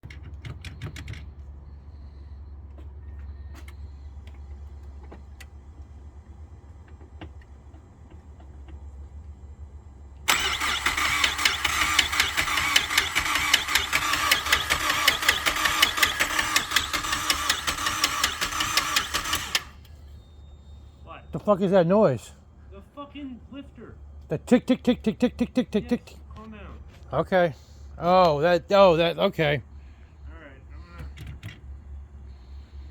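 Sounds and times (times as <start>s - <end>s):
car engine cranking on starter: 10.2s - 20.0s.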